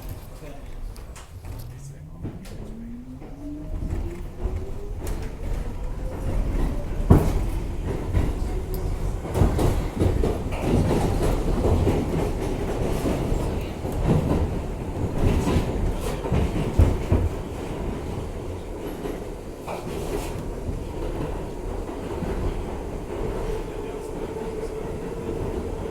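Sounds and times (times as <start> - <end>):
subway car wheels rumbling: 0.0 - 25.9
wheels clacking over rail joints: 0.0 - 25.9.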